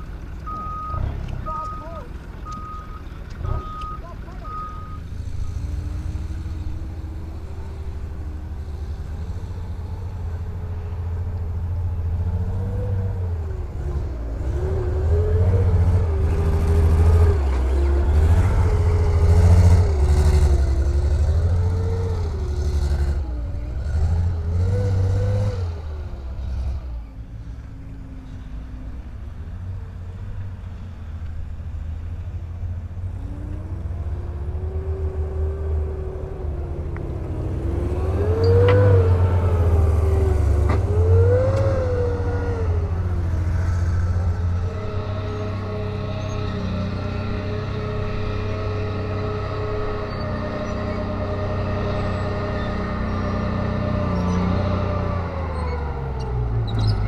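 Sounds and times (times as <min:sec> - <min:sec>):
heavy vehicle engine revving: 0:00.0 - 0:57.0
reversing beeps: 0:00.5 - 0:05.1.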